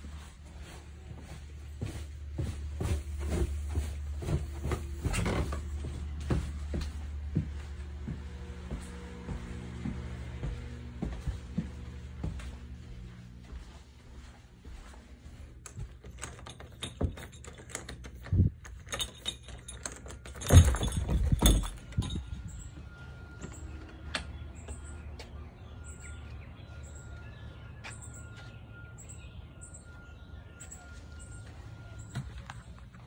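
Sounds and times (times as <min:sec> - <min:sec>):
footsteps and handling noise: 0:00.0 - 0:33.0.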